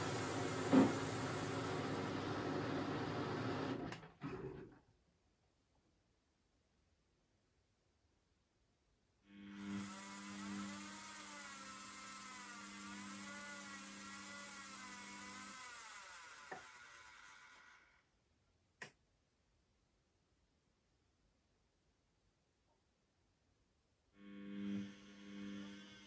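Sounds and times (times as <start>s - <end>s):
washing machine running: 0.0s - 4.7s
click: 18.8s - 19.0s.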